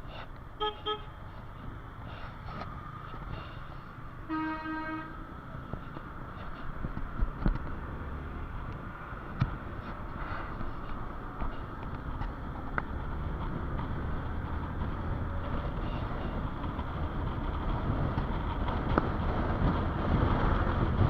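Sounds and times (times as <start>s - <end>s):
motorbike road and wind rumble: 0.0s - 21.0s
vehicle horns beeping: 0.6s - 1.2s, 4.2s - 5.2s.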